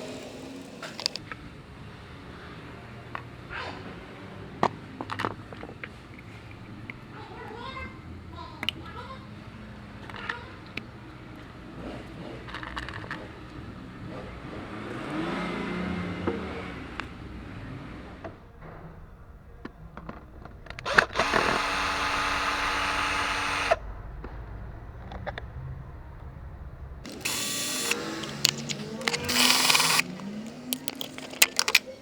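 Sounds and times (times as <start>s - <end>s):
power tool running: 0.0s - 1.2s, 20.8s - 23.8s, 27.0s - 31.7s
tool clicks and knocks: 27.1s - 31.9s.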